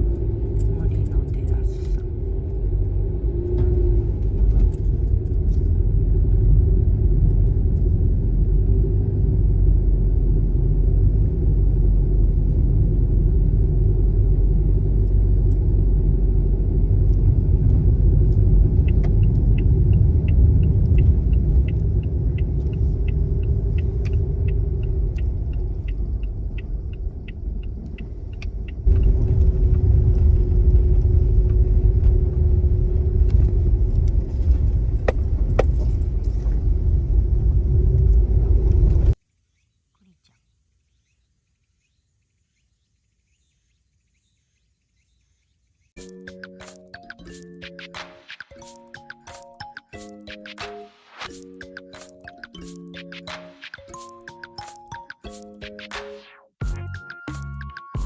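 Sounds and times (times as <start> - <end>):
car road and engine rumble: 0.0 - 39.2
regular ticking: 17.7 - 29.6.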